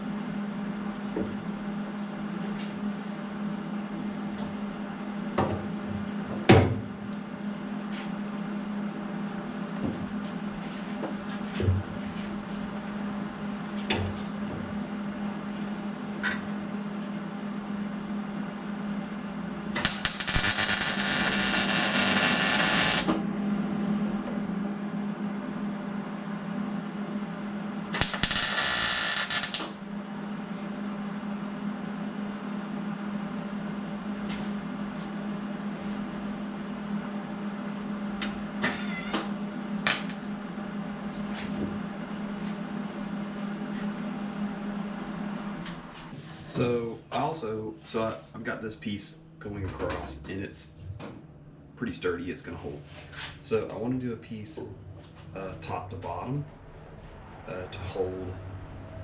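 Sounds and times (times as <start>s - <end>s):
steady low hum: 0.0s - 59.0s
power tool working steel: 19.8s - 23.2s, 28.0s - 29.7s.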